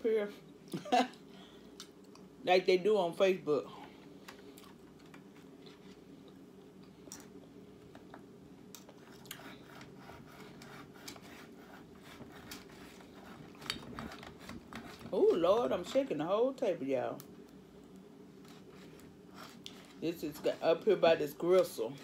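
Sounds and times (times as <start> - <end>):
steady low hum: 0.0 - 22.0
person chewing: 8.7 - 9.6.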